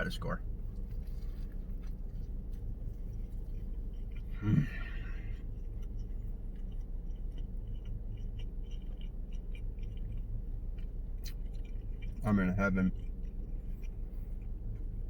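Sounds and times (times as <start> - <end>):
man chewing food: 0.4 - 15.0
wet mouth clicks: 3.1 - 12.3.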